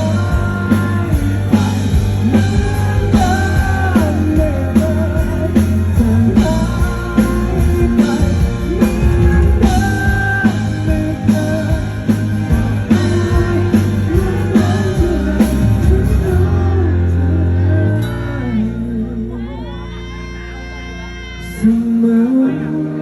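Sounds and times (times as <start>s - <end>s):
drum kit beat: 0.0s - 16.6s
electric guitars and bass: 0.0s - 23.0s
person singing: 0.0s - 23.0s.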